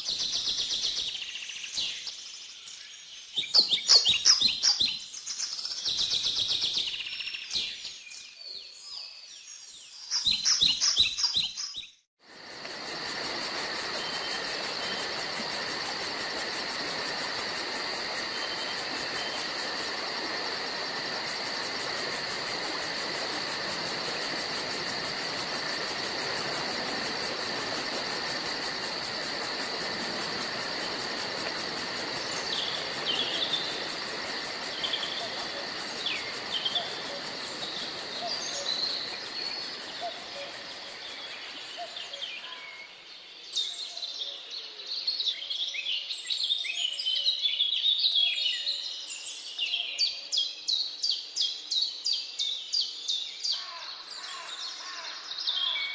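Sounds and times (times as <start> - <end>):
insects droning: 12.2 - 46.4, 47.5 - 55.9
steady hiss: 12.3 - 42.3.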